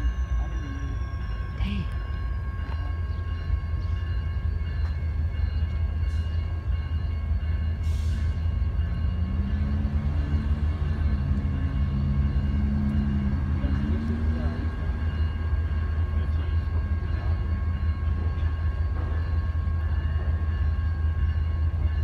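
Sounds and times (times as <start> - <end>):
high ringing tones: 0.0 - 22.0
freight cars rumbling on track: 7.7 - 20.7.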